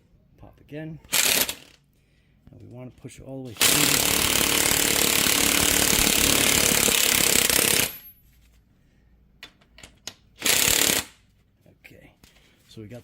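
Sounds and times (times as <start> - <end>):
electric impact gun hammering: 1.1 - 1.8, 3.5 - 8.1, 10.4 - 11.2.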